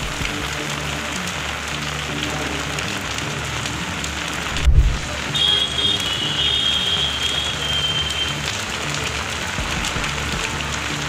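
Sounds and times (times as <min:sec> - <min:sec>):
rain on wet road: 0:00.0 - 0:11.0
short low thump: 0:04.6 - 0:05.0.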